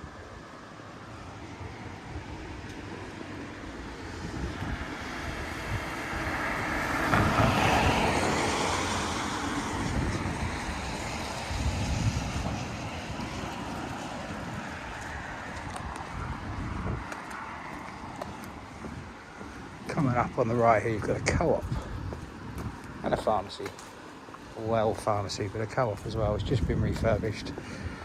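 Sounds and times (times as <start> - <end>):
vehicle tyres swishing on wet road: 0.3 - 28.0
wind noise on microphone: 1.7 - 23.5, 24.7 - 28.0.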